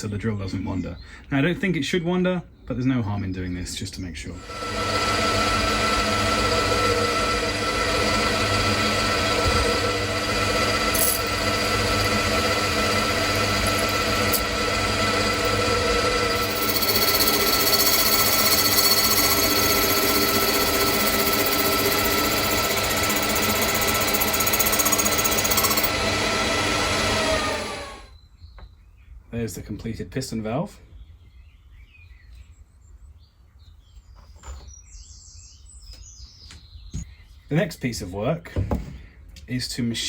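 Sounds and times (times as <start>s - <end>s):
cutter cutting metal: 4.4s - 28.1s
machine tool motor hum: 4.4s - 28.1s.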